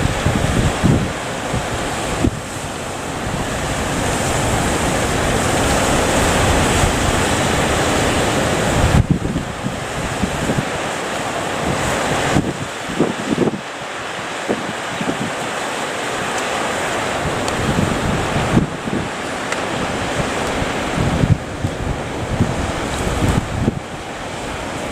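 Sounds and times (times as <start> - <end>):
ocean waves breaking: 0.0 - 24.9
wind buffeting microphone: 0.0 - 24.9.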